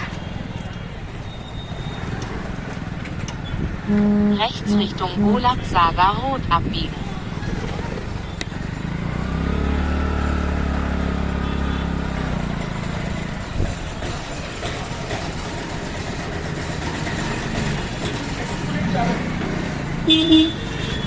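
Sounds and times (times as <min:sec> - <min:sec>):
motorbike engine and road noise: 0:00.0 - 0:21.0
street traffic: 0:00.0 - 0:21.0
deeper engine hum nearby: 0:03.8 - 0:06.0.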